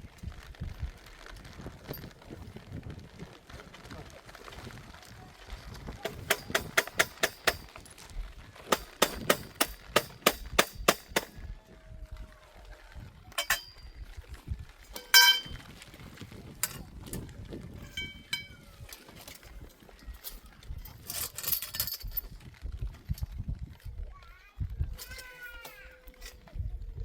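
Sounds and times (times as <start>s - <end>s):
hammer striking metal stake: 6.0s - 7.7s, 8.7s - 11.4s, 13.4s - 13.7s, 14.9s - 15.5s.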